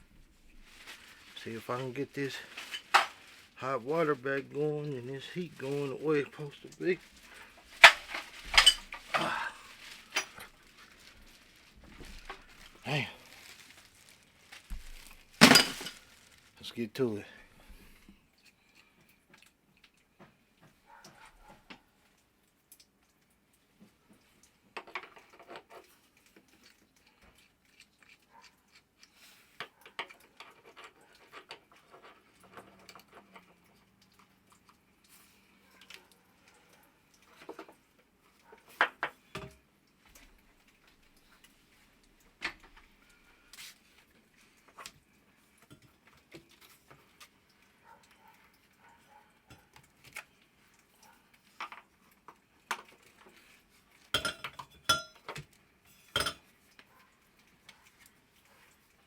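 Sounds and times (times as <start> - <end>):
hand tools clicking and tapping: 54.2 - 55.5, 56.2 - 56.4.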